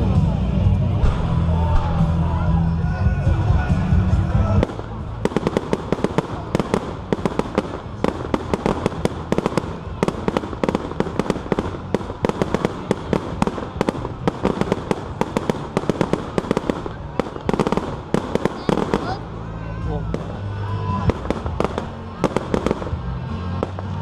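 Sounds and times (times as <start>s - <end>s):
rapid crackling pops: 4.6s - 19.3s.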